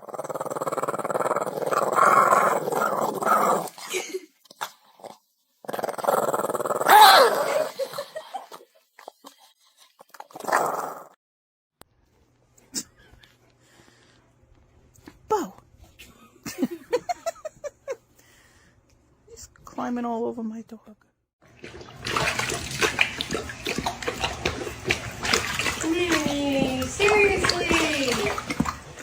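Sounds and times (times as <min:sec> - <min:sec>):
dog growling: 0:00.0 - 0:03.9, 0:05.0 - 0:07.9
dog whining: 0:06.8 - 0:07.7.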